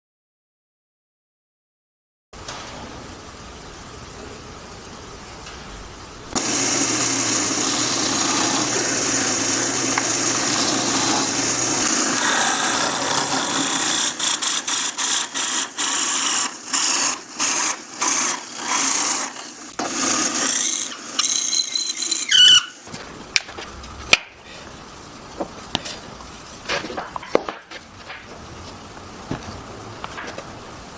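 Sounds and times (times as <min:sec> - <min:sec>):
power tool working wood: 0:06.3 - 0:23.0
brief squeal: 0:21.2 - 0:22.9.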